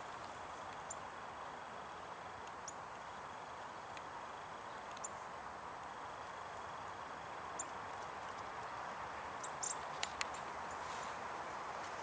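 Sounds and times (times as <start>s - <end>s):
faint steady hiss: 0.0s - 12.0s
sharp clicks: 9.6s - 10.5s.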